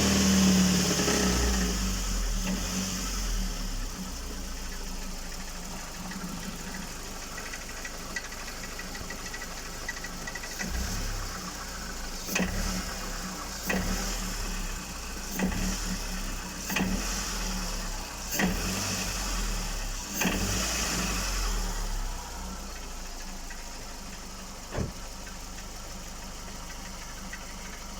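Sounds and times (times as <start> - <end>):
engine revving with sharp knock: 0.0 - 3.7, 10.5 - 22.1, 24.7 - 25.1
engine idling with ticking: 0.0 - 27.9.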